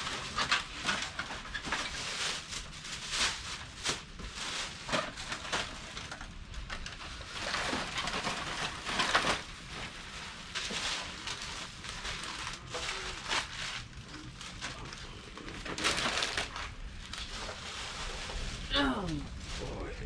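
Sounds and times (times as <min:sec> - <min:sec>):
plastic bags rustling and crinkling: 0:00.0 - 0:20.0.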